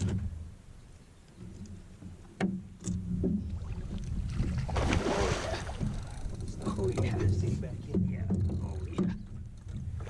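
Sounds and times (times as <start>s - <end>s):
sharp knocks on boat: 2.0s - 3.6s.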